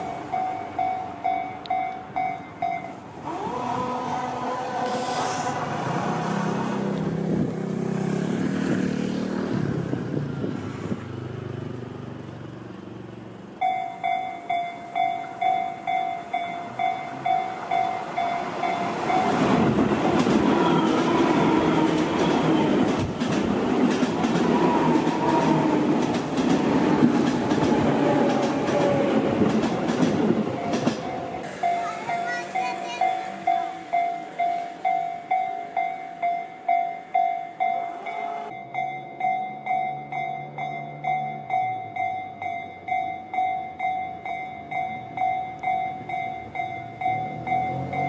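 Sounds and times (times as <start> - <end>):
train wheels rumbling on rails: 0.0 - 48.0
train motor whine: 3.1 - 7.6, 24.2 - 31.7.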